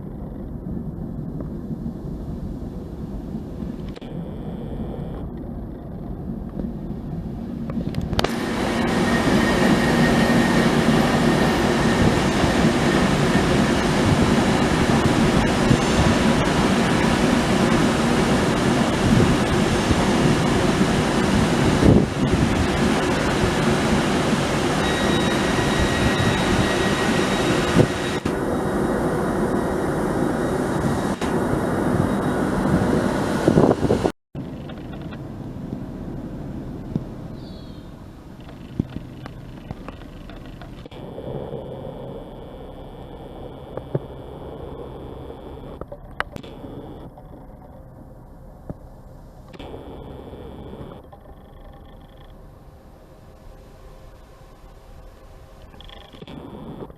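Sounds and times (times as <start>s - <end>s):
train passing close by: 6.1s - 34.1s.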